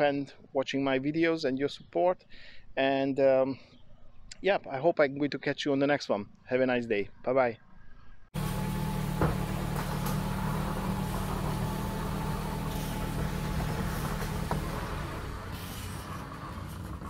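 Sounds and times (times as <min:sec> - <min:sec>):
engine idling: 0:08.4 - 0:17.0.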